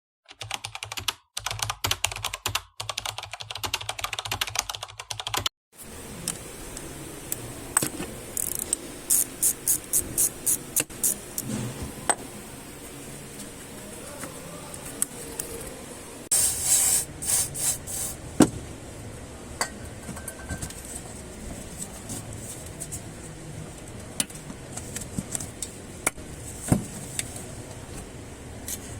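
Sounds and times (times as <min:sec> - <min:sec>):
rapid clicking and tapping: 0:00.3 - 0:05.5
steady hiss: 0:05.8 - 0:11.6.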